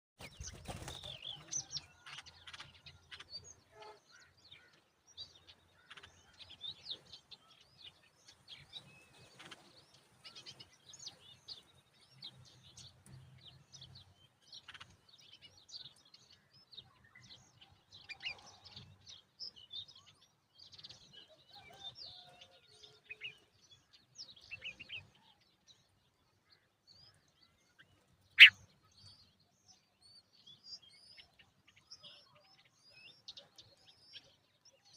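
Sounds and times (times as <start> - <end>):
bulbuls chirping: 27.8 - 28.7.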